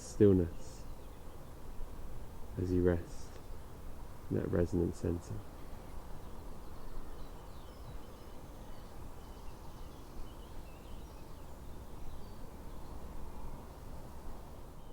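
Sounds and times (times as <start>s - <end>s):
steady low rumbling noise: 0.0s - 7.2s
faint bird chirps: 0.0s - 14.9s.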